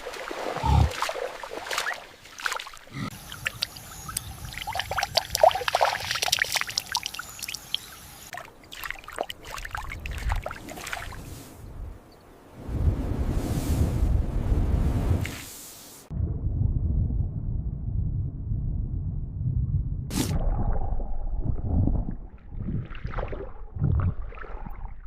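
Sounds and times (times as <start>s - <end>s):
water splashing and trickling: 0.0s - 11.6s, 20.3s - 25.0s.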